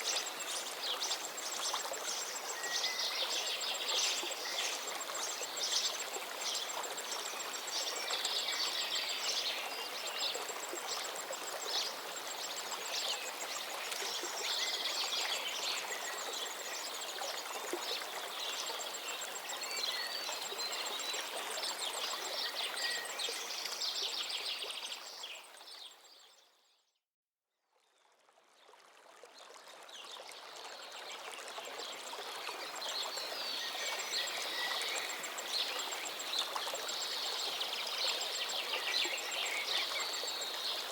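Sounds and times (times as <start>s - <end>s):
river flowing: 0.0s - 25.8s, 28.7s - 40.9s
small birds singing and chirping: 37.0s - 40.9s.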